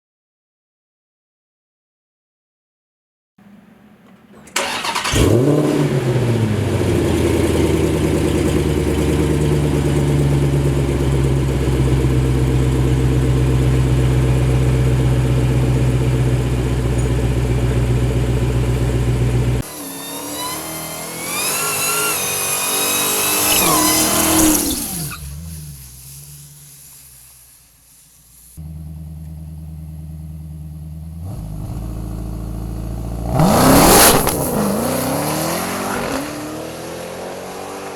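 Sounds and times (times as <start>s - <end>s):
car engine starting and revving: 3.4s - 27.3s, 28.6s - 37.9s.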